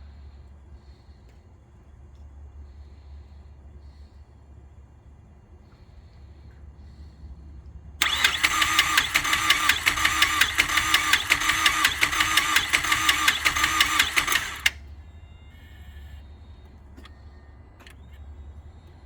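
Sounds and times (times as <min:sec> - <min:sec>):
starter motor cranking engine: 0:08.0 - 0:14.9.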